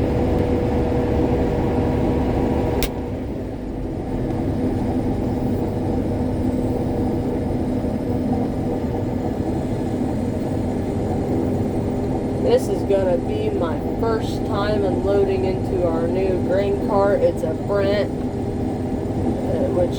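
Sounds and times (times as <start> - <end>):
combine harvester droning: 0.0 - 19.9
sharp click: 2.8 - 3.0.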